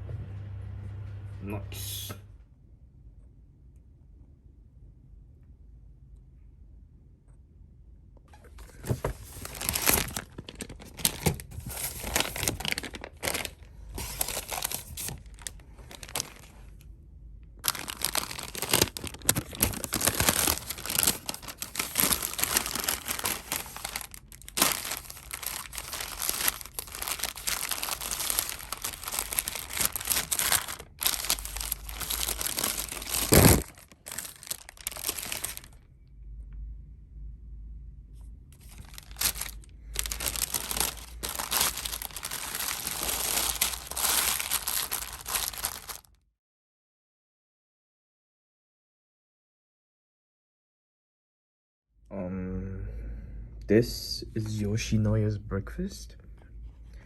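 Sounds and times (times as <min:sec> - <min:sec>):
plastic packaging crinkling and tearing: 0:08.5 - 0:16.8, 0:17.6 - 0:35.8, 0:38.6 - 0:46.2.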